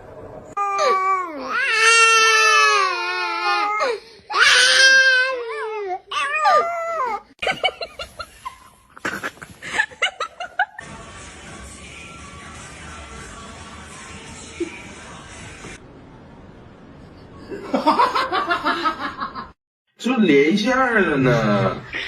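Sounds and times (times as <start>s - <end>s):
wailing crying-like cries: 0.6s - 7.4s.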